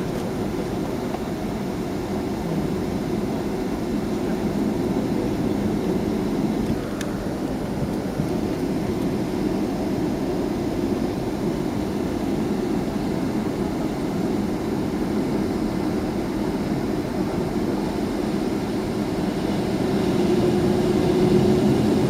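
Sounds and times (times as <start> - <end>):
jet engines low rumble in cabin: 0.0 - 22.0.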